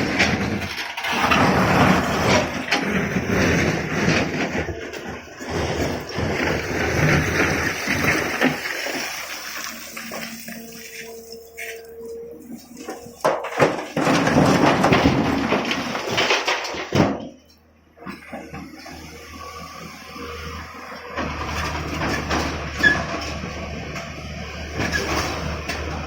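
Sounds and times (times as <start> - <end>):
rocks clattering into truck: 0.0 - 10.6, 12.8 - 17.5
excavator engine: 0.0 - 26.0.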